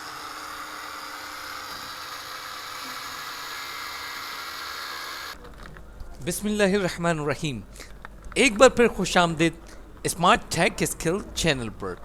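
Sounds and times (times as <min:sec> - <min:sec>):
small electric motor whirring: 0:00.0 - 0:05.4.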